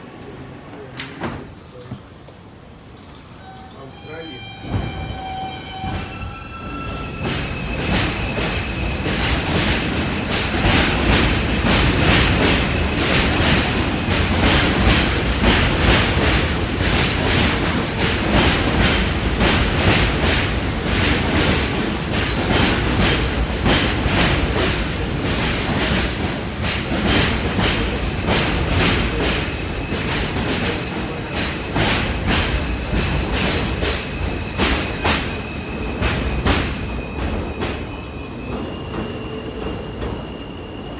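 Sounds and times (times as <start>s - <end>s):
train rumble: 0.0s - 40.9s
high wheel squeal: 3.1s - 9.0s, 34.1s - 40.9s
train wheels clicking over rail joints: 6.8s - 37.9s.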